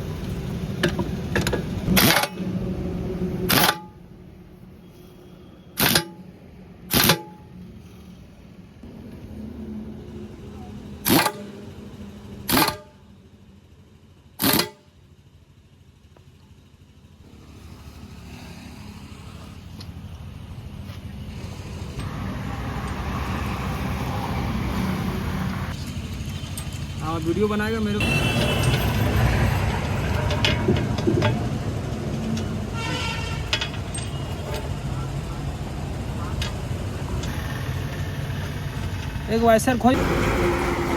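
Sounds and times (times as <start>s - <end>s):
engine running: 6.6s - 40.9s
loud horn honks: 28.0s - 29.3s, 32.7s - 33.7s, 40.0s - 40.9s.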